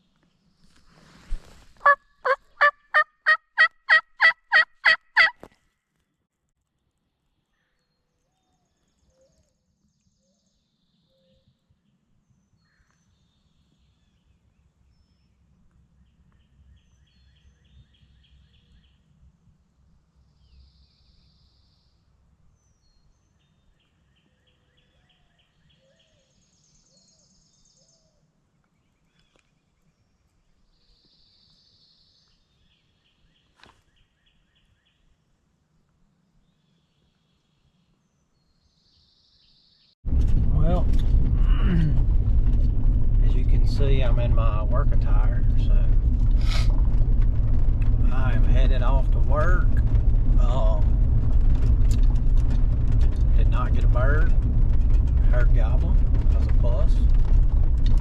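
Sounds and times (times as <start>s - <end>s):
low outdoor rumble: 40.0s - 58.0s.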